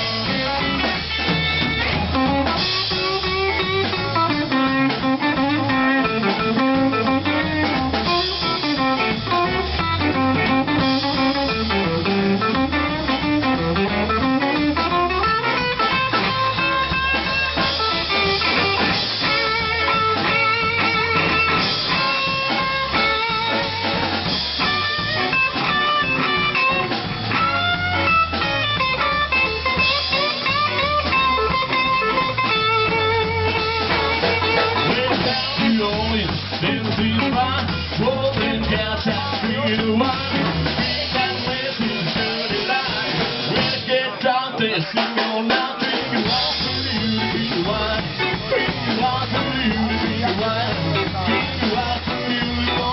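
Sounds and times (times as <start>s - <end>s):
drum kit: 0.0s - 52.9s
electric guitar: 0.0s - 52.9s
walking bass line: 0.0s - 52.9s.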